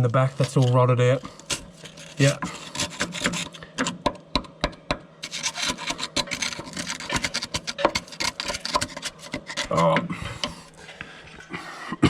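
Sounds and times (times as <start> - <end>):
scraping on rusted metal: 0.0 - 4.0, 5.2 - 10.7.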